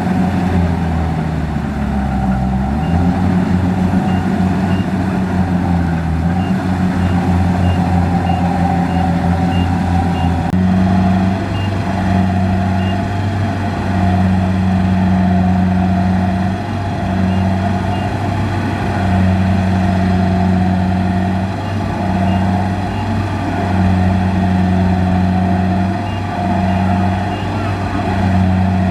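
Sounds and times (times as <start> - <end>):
combine harvester running: 0.0 - 28.9
rapid high beeping: 6.4 - 10.4.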